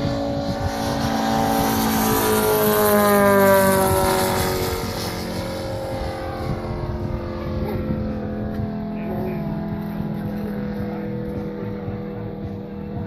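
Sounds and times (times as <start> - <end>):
model plane engine flying past: 0.0 - 13.0.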